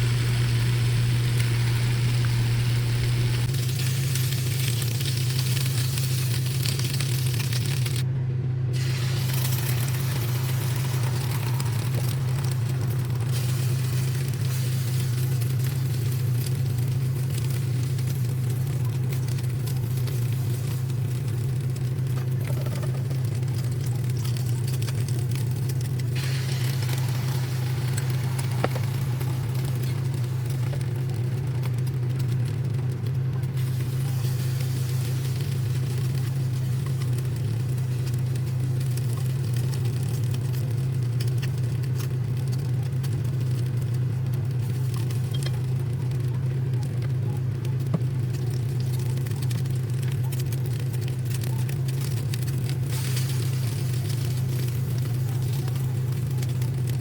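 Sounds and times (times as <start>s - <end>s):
hissing noise: 0.0s - 3.6s
low mechanical hum: 0.0s - 57.0s.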